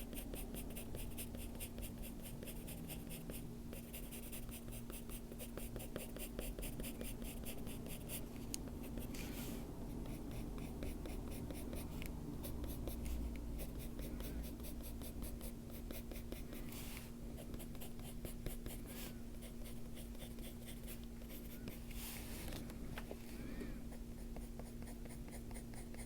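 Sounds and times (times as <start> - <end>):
steady low hum: 0.0 - 26.0
pencil scratching on paper: 0.1 - 8.2.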